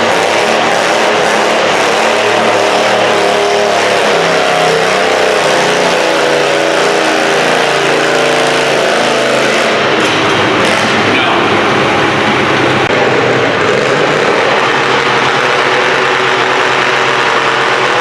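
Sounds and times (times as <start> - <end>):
small engine running at high revs: 0.0 - 11.0.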